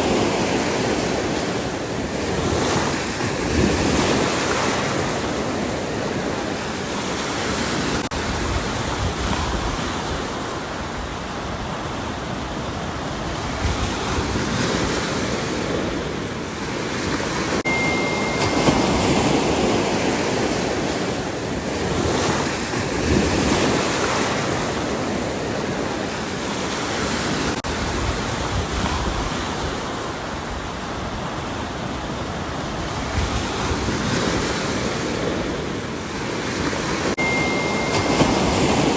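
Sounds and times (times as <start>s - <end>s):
waves breaking on shore: 0.0s - 38.9s
faint high steady tone: 17.6s - 20.2s, 37.2s - 38.9s.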